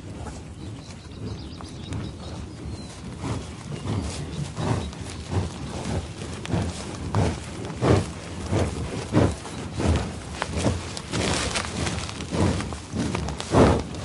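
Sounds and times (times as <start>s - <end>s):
heavy animal footfalls: 1.2s - 14.0s.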